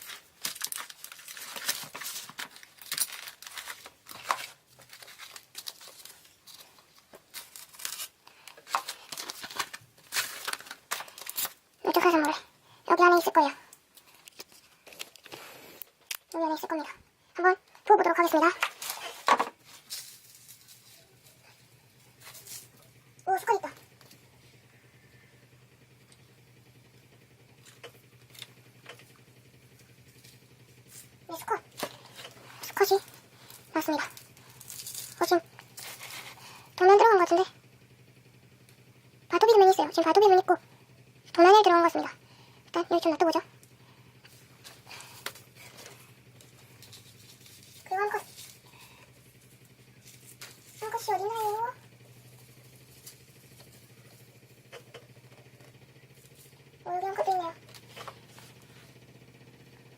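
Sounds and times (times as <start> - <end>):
packaging tearing and crinkling: 0.0 - 11.6, 31.7 - 36.4
low steady hum: 0.0 - 59.9.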